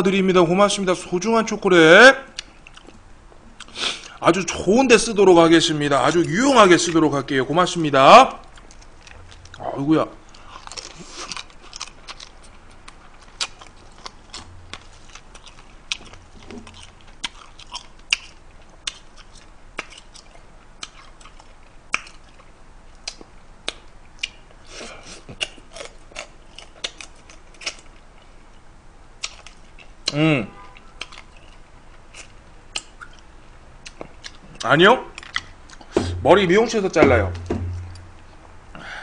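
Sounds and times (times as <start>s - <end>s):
person chewing crab: 2.4s - 4.2s, 8.4s - 28.4s, 29.2s - 34.6s, 35.2s - 36.0s.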